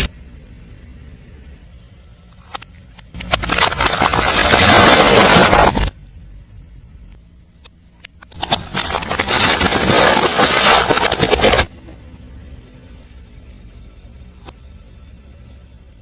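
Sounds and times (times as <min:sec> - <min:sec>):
car tyre crushing objects: 0:02.4 - 0:06.0, 0:08.3 - 0:11.8.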